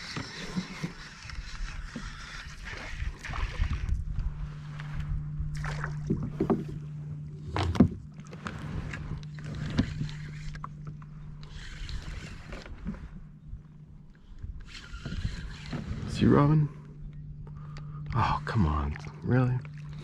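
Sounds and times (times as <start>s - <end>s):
electric trolling motor humming: 0.0s - 20.0s
water splashing: 5.5s - 6.8s, 18.8s - 20.0s.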